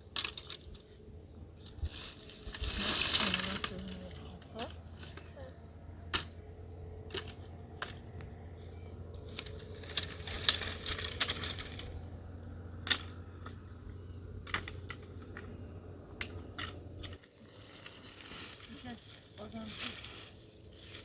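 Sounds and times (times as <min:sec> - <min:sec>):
small hard objects clattering: 0:00.0 - 0:00.8, 0:01.6 - 0:05.4, 0:07.1 - 0:12.2
steady low hum: 0:00.0 - 0:21.0.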